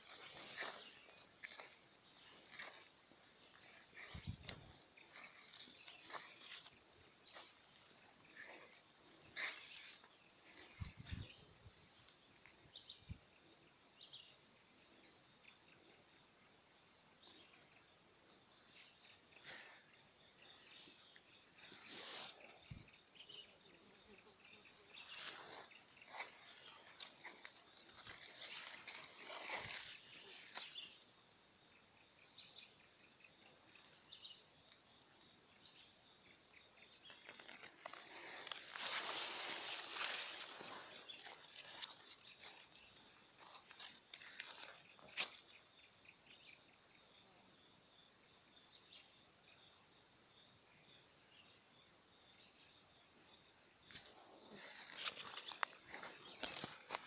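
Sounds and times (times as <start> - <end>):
insects trilling: 0.0 - 57.0
short hissing burst: 21.8 - 22.5.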